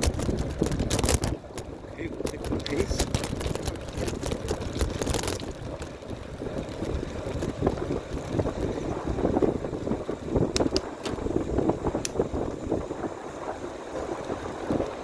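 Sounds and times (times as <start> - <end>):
light clicks and rattles: 0.0 - 8.4
wind buffeting microphone: 0.0 - 15.0.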